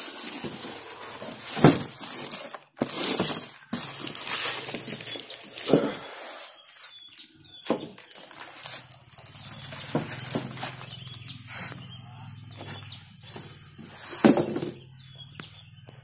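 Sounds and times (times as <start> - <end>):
packaging being handled: 0.0 - 6.6, 7.6 - 11.8.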